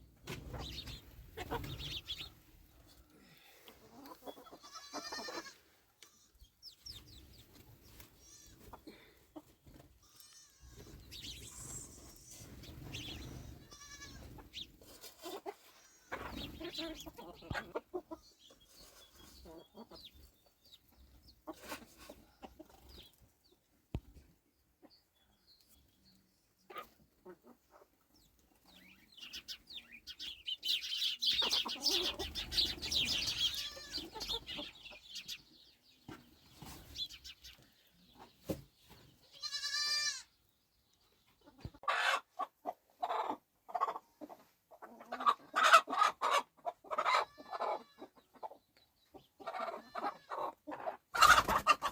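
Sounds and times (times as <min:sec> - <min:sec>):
hens clucking: 0:00.1 - 0:23.3, 0:26.6 - 0:40.2, 0:41.2 - 0:51.9.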